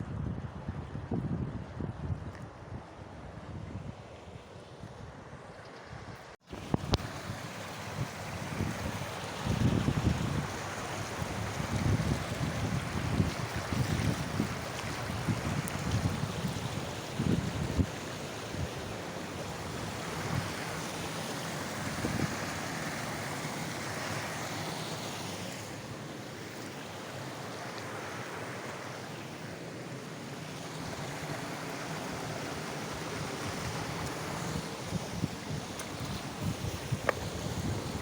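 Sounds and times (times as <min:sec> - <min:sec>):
wind buffeting microphone: 0:00.0 - 0:04.1, 0:06.0 - 0:20.6, 0:32.9 - 0:38.0
water rushing: 0:06.4 - 0:38.0.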